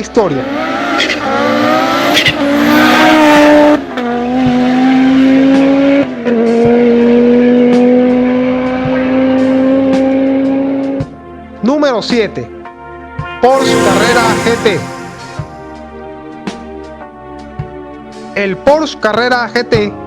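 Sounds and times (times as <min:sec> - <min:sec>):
rally car engine accelerating hard: 0:00.2 - 0:10.8.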